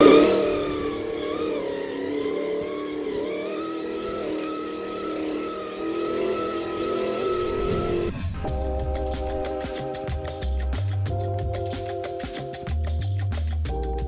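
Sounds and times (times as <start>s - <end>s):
imitation car engine sound: 0.0s - 14.0s.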